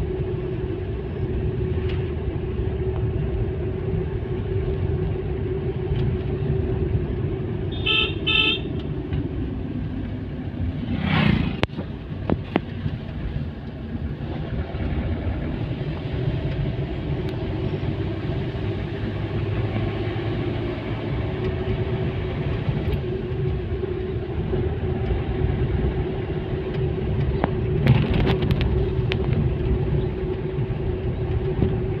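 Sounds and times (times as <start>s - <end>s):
passing traffic rush: 0.0s - 32.0s
vehicle engine and road noise: 0.0s - 32.0s
horn beeps: 7.7s - 8.7s.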